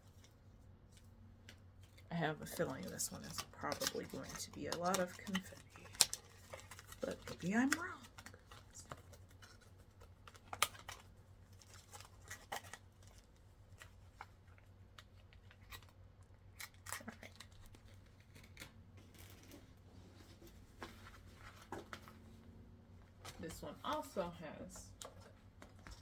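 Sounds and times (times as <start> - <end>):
rustling of packaging: 0.0 - 26.0.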